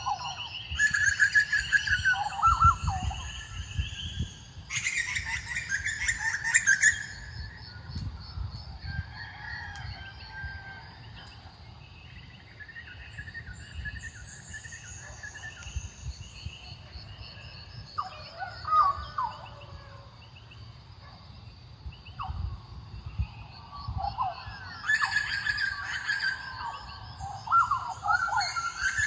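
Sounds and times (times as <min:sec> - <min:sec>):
bird trill: 0:00.0 - 0:07.8, 0:23.9 - 0:29.0
birds calling: 0:00.0 - 0:19.7, 0:23.3 - 0:29.0.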